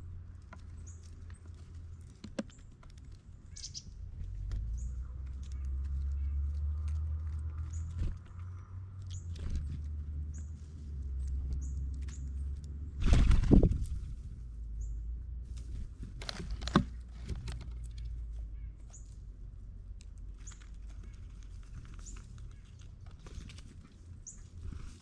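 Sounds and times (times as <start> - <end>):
pecks clicks and scrabbling: 0.0 - 10.0, 16.0 - 18.4, 19.8 - 25.0.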